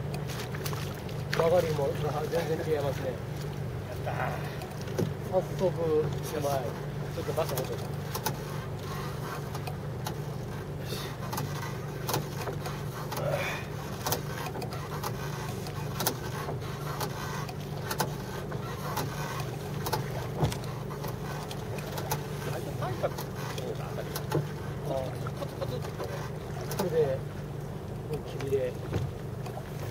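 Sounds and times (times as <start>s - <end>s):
boat engine droning: 0.0s - 29.9s
sharp clicks and knocks: 18.9s - 22.3s.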